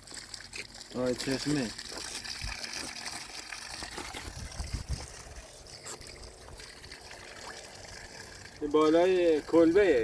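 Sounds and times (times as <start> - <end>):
spring water trickling: 0.0 - 10.0.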